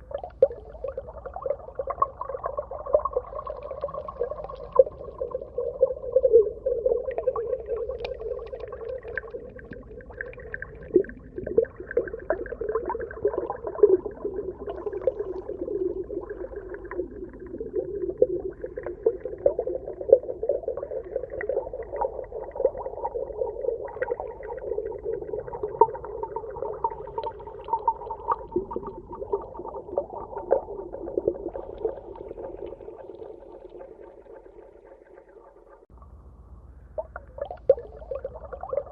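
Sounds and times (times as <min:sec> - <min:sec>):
muffled underwater wash: 0:00.0 - 0:38.9
small clicks and pops: 0:07.8 - 0:09.8.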